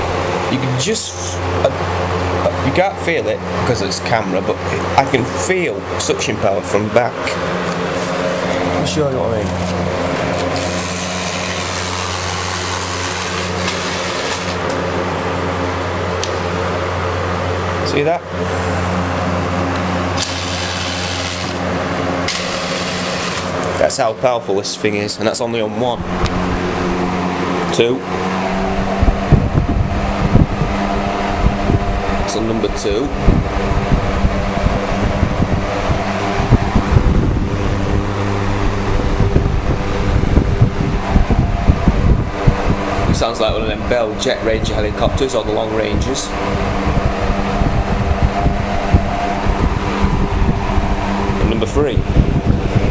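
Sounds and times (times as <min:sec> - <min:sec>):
box fan running: 0:00.0 - 0:52.9
wind buffeting microphone: 0:28.3 - 0:52.9.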